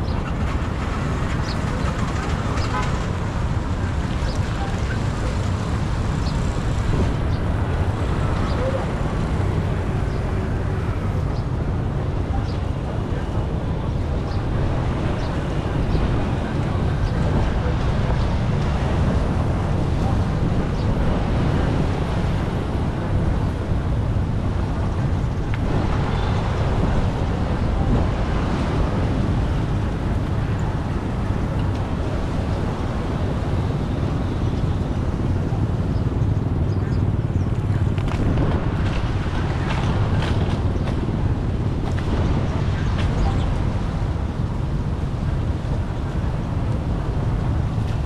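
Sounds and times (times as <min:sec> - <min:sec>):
floodwater rushing: 0:00.0 - 0:13.1.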